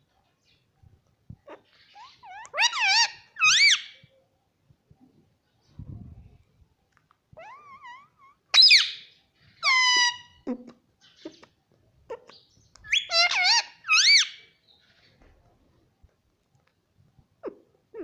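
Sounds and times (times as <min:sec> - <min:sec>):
parrot squeaky calls and whistles: 0:01.7 - 0:04.1, 0:07.4 - 0:10.4, 0:12.3 - 0:14.6.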